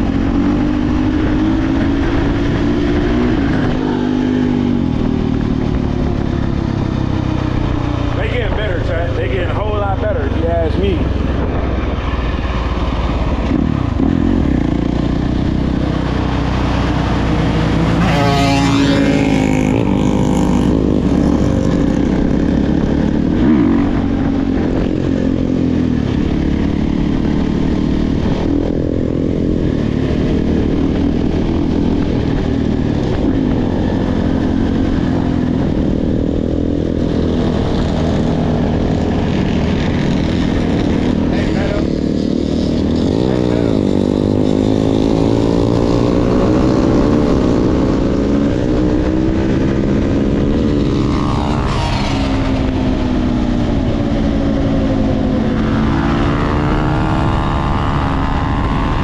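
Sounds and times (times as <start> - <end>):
dirt bike engine revving: 13.2 - 59.0.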